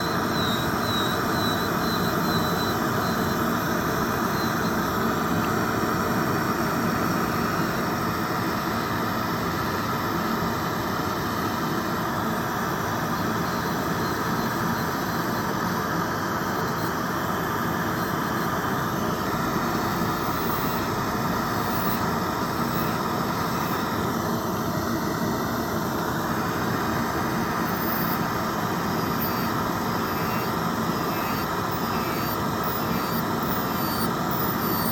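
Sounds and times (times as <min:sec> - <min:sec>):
electric nail drill grinding: 0:00.0 - 0:06.1, 0:19.2 - 0:24.0, 0:26.2 - 0:34.9.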